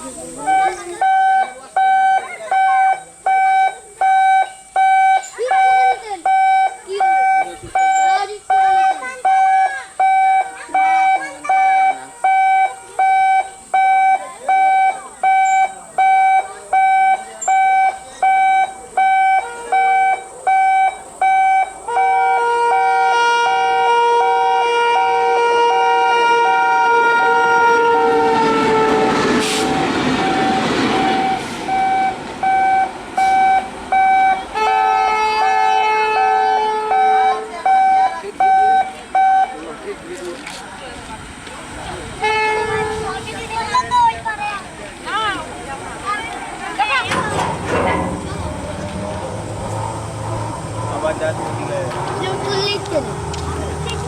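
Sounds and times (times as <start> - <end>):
train passing: 0.0 - 54.0
level-crossing alarm beeping: 0.3 - 23.0, 27.3 - 39.8, 45.1 - 54.0
train horn blast: 21.9 - 31.9, 33.2 - 37.5, 42.2 - 43.4.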